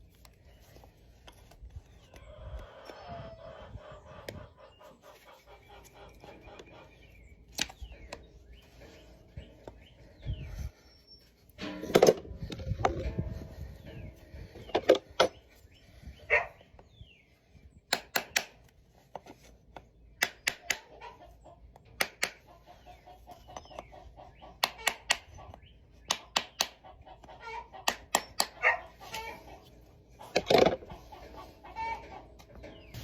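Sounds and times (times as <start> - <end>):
hoof nippers snapping: 7.5 - 8.2, 17.9 - 18.8, 20.2 - 21.0, 21.8 - 22.5, 24.6 - 29.4.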